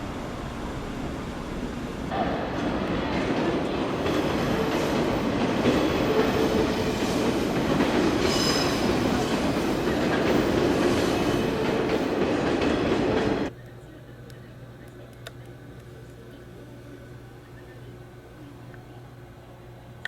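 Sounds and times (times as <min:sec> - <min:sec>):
train wheels rumbling on track: 0:00.0 - 0:13.5.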